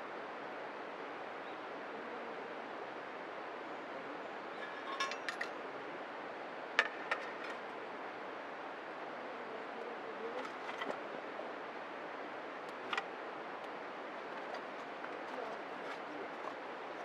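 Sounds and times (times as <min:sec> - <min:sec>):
light metallic clinks: 0:04.7 - 0:05.6.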